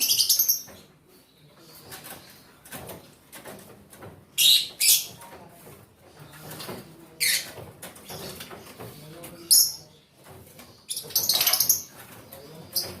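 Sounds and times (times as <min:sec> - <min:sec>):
lovebirds chirping: 0:00.0 - 0:02.8, 0:06.2 - 0:13.0.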